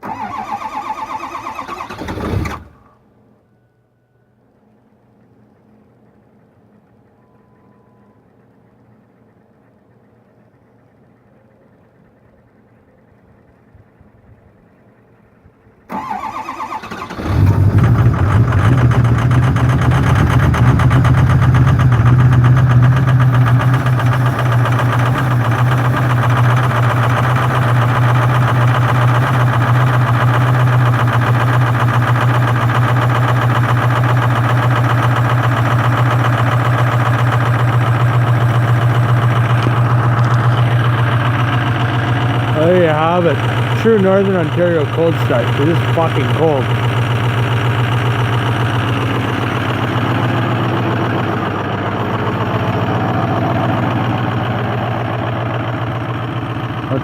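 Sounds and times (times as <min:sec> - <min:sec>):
diesel engine cranking and running: 0:00.0 - 0:03.2, 0:15.8 - 0:57.0.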